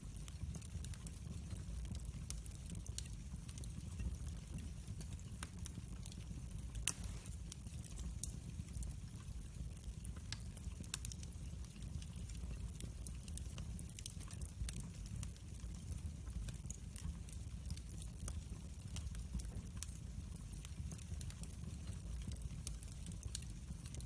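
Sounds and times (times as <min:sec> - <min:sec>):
wood fire crackling: 0:00.0 - 0:24.0
sharp pops from fire: 0:05.4 - 0:08.4.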